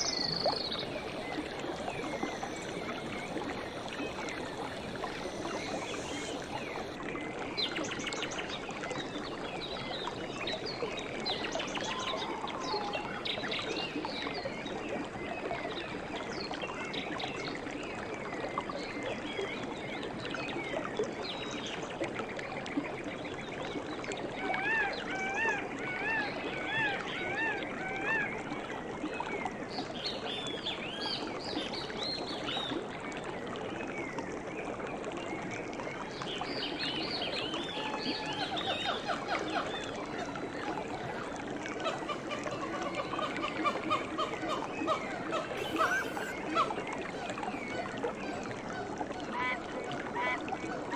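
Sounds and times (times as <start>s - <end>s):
small birds singing: 0.0s - 7.0s
trickling stream: 0.0s - 50.9s.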